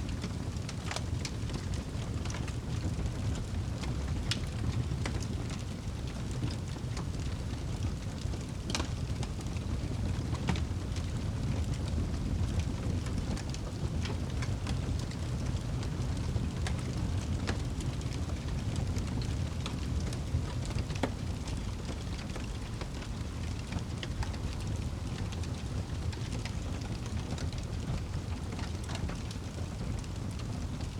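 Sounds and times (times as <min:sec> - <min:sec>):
flames rumbling: 0:00.0 - 0:30.9
wood crackling and popping: 0:00.1 - 0:30.9.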